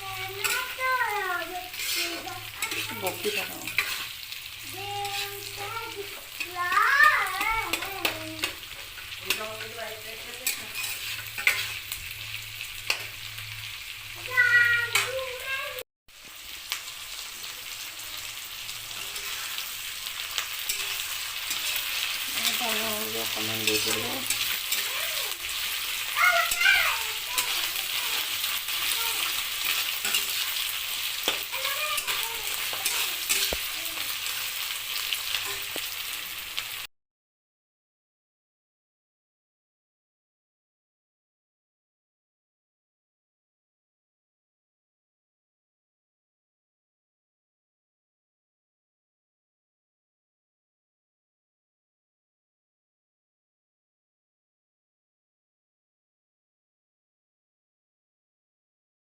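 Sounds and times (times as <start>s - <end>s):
food sizzling in a pan: 0.0s - 36.9s.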